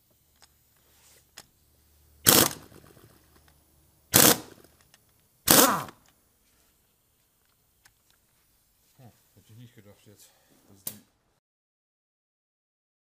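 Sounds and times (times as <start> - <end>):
pneumatic impact wrench hammering: 2.2 - 3.5, 4.1 - 6.1.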